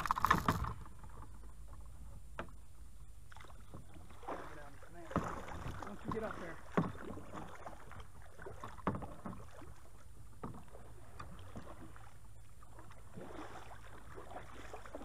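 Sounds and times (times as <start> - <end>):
knocks in a kayak: 0.0 - 1.0, 5.1 - 7.4, 8.8 - 9.5
low steady rumble: 0.0 - 8.4.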